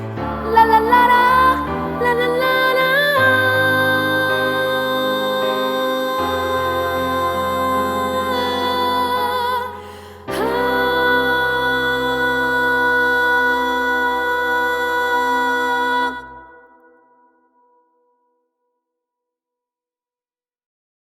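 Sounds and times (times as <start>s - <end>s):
slow keyboard ballad chords: 0.0s - 16.4s.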